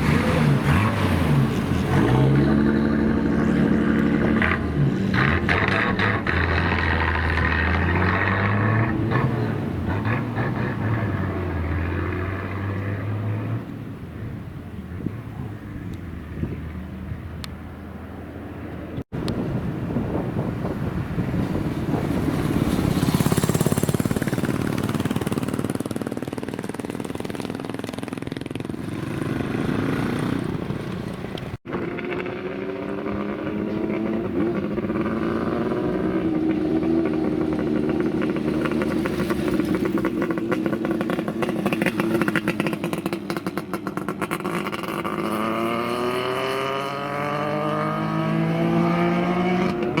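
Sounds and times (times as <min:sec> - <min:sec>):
engine revving: 0:00.0 - 0:13.6, 0:31.7 - 0:50.0
motorcycle engines revving: 0:00.0 - 0:13.8, 0:20.0 - 0:50.0.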